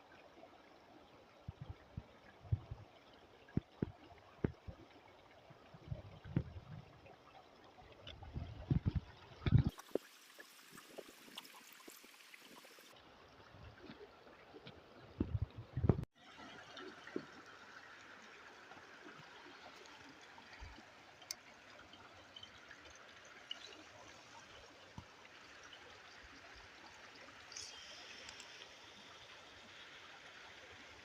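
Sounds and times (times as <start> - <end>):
stream running: 0.0 - 31.0
small ticks: 27.5 - 29.4.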